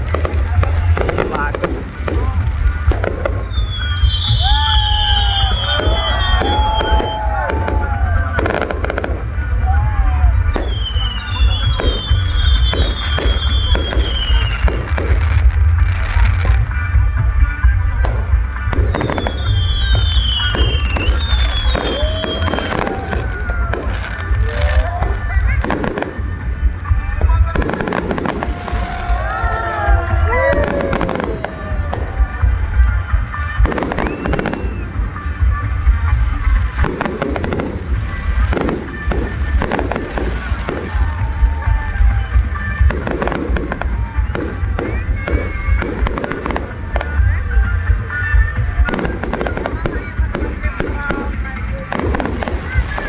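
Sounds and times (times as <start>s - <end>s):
whistling fireworks shells: 0.0s - 9.6s, 10.2s - 15.2s, 17.7s - 24.4s, 27.6s - 35.1s
fireworks bangs and crackles: 0.0s - 53.0s
heavy low rumble: 0.0s - 53.0s.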